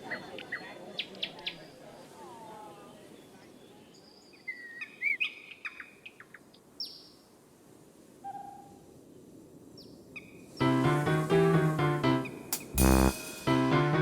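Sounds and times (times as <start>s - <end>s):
piano music: 10.6s - 14.0s.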